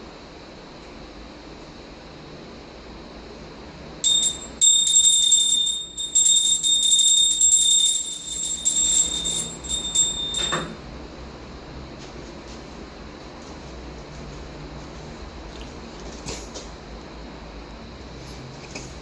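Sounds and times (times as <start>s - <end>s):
small bell ringing rapidly: 4.0s - 10.7s.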